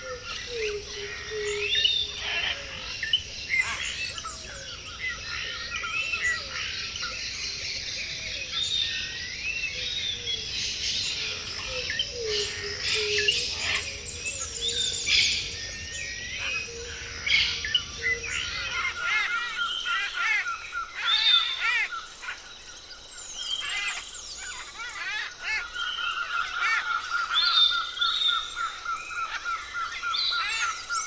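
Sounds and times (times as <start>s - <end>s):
birds whistling calls: 0.0s - 31.0s
high insect hum: 0.0s - 31.0s.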